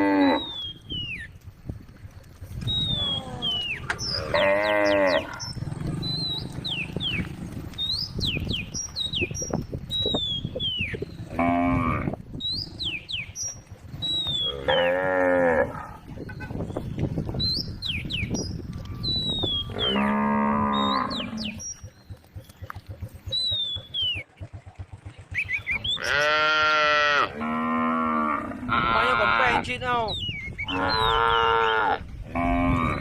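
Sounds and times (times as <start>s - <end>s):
cows mooing: 0.0s - 0.8s, 2.8s - 8.1s, 10.9s - 16.2s, 19.4s - 21.7s, 25.8s - 29.7s, 30.6s - 33.0s.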